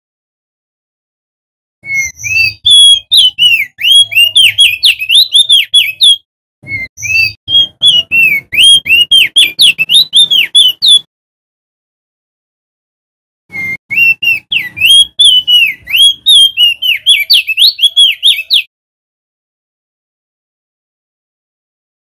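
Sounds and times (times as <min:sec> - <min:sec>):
bird singing whistled notes: 0:01.8 - 0:11.1, 0:13.5 - 0:18.7.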